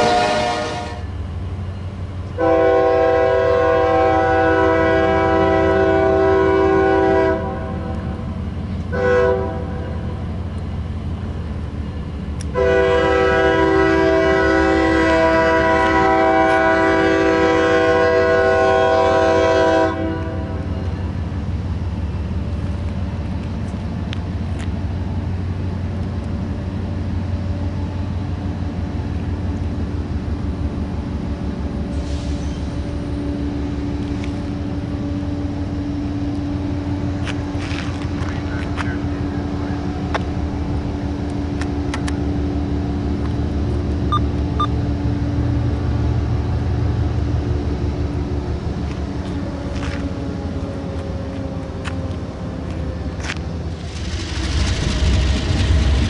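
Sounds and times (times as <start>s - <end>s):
locomotive horn blast: 0.0s - 1.2s, 2.4s - 8.1s, 8.9s - 10.1s, 12.5s - 20.7s
train rumble: 0.0s - 56.0s.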